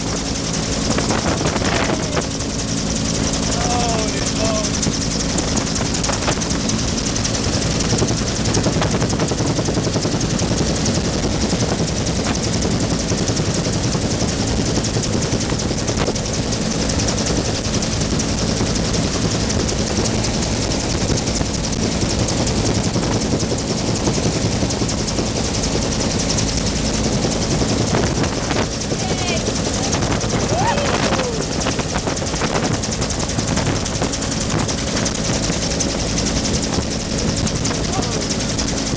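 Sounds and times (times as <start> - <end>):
helicopter turbine and rotor noise: 0.0 - 38.9.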